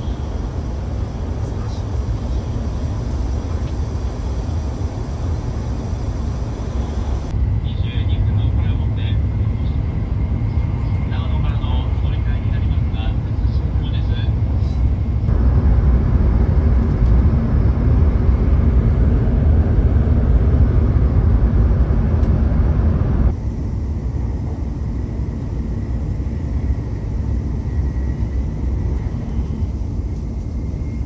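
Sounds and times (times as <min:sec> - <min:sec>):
train cabin rumble: 0:00.0 - 0:23.4.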